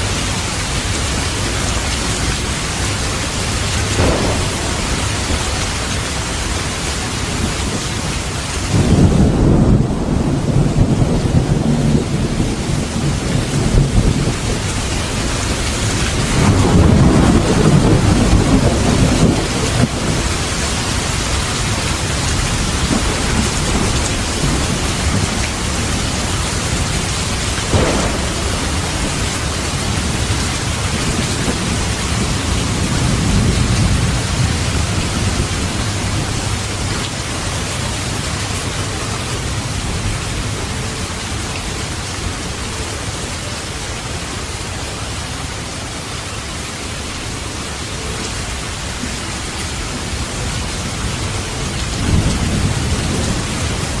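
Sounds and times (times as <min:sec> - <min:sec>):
low thunder rumbling: 0:00.0 - 0:42.4, 0:49.9 - 0:54.0
heavy rain: 0:00.0 - 0:54.0
sharp crack: 0:03.9 - 0:06.9, 0:27.6 - 0:31.6.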